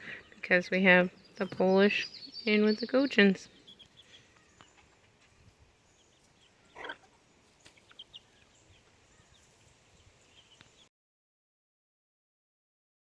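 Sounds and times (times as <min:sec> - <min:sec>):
chicken clucking: 0:01.4 - 0:09.7.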